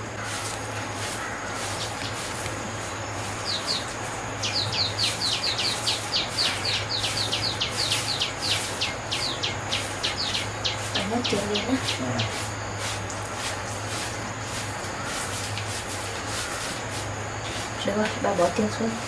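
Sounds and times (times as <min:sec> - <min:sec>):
bird chirping: 0:00.0 - 0:13.9
steady low hum: 0:00.0 - 0:19.0.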